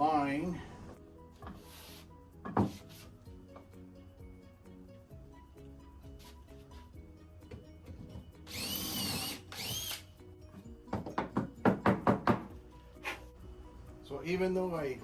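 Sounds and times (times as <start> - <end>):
power drill whining: 8.4 - 10.1
sharp knocks on wood: 10.9 - 12.6.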